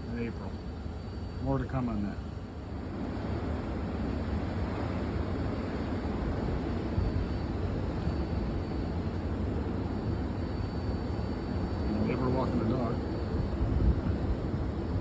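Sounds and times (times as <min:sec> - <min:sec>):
blizzard wind blowing: 0:12.7 - 0:15.0.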